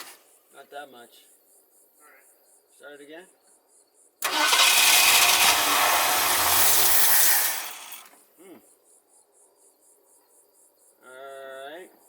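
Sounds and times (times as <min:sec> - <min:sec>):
crickets chirping: 0:00.2 - 0:05.4, 0:08.4 - 0:12.0
starter cranking engine: 0:04.2 - 0:08.1.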